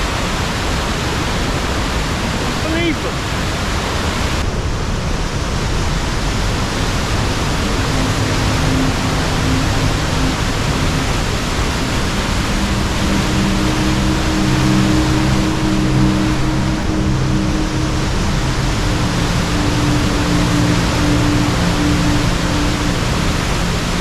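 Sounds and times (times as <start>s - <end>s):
river water rushing: 5.5s - 24.0s
sustained background music: 6.2s - 24.0s.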